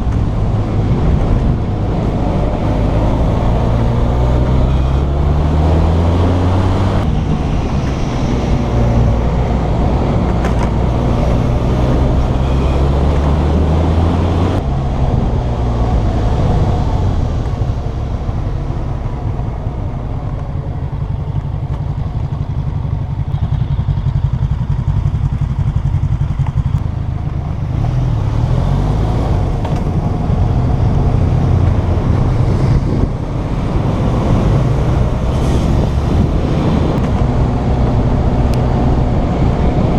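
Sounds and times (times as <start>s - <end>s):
motorcycle engine revving: 0.0s - 16.7s.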